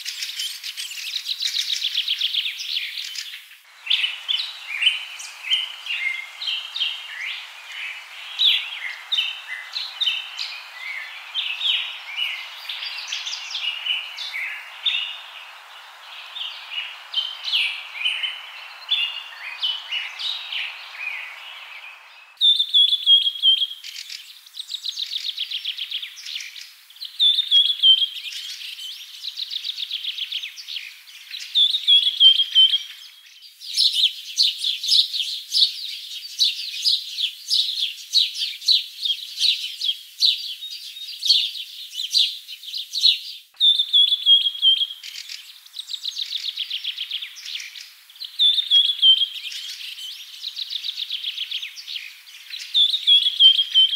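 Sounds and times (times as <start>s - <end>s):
soft hiss: 0.0s - 53.9s
birds chirping and singing: 2.8s - 23.6s, 43.6s - 53.9s.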